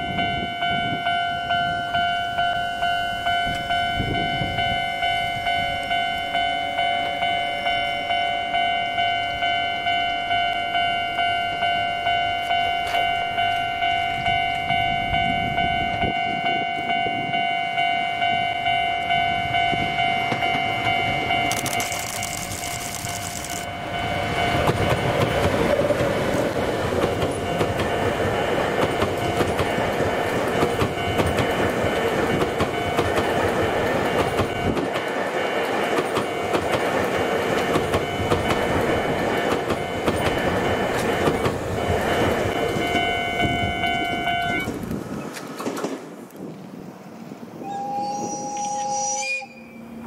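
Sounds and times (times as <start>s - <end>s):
high-pitched tones: 0.0s - 25.4s, 37.9s - 44.7s, 47.6s - 50.0s
train wheels clattering on rails: 19.6s - 46.6s.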